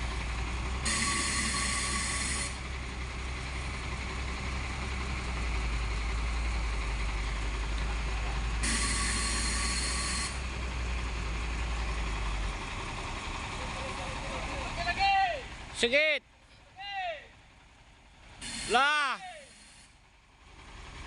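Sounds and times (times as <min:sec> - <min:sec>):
truck engine running: 0:00.0 - 0:21.0
loud air hissing: 0:08.6 - 0:10.4, 0:18.4 - 0:20.0.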